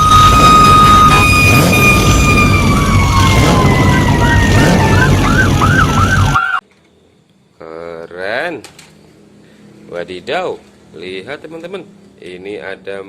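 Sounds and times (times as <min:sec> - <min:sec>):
fast warbling siren: 0:00.0 - 0:06.6
toy siren tone dropping in pitch: 0:00.0 - 0:06.6.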